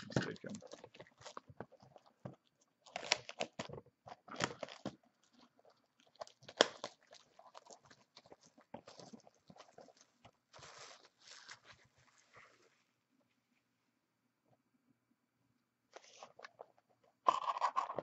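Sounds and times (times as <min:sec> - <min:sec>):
packaging crinkling and tearing: 0:00.0 - 0:12.0.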